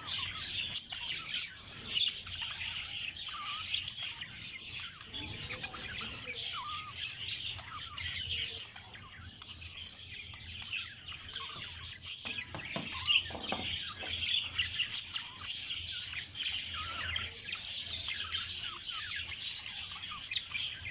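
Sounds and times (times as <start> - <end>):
budgerigars chattering: 0.0 - 20.9.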